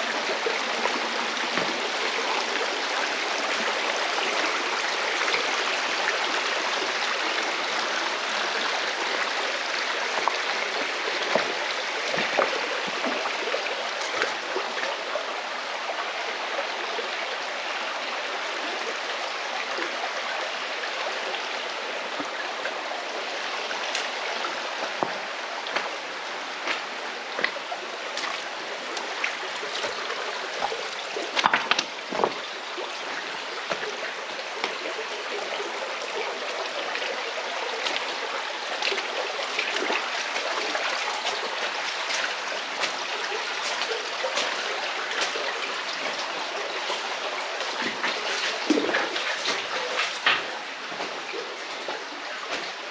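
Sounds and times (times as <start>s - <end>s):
stream rushing over rocks: 0.0s - 52.9s
sharp water splashes: 37.7s - 52.9s.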